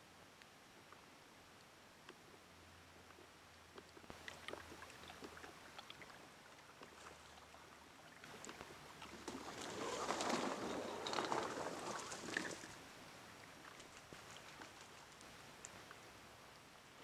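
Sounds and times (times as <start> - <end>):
small water splashes: 3.8 - 16.0.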